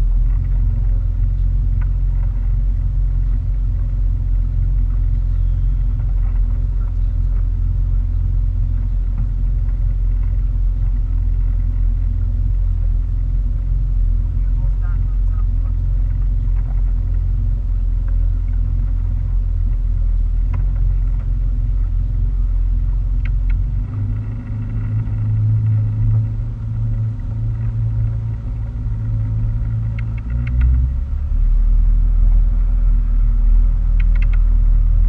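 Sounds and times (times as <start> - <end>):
motorboat engine rumble: 0.0 - 35.0.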